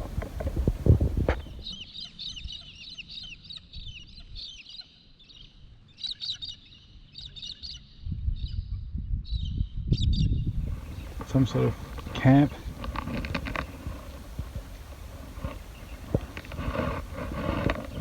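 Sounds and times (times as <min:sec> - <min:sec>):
birds chirping: 0:00.0 - 0:01.8, 0:10.6 - 0:18.0.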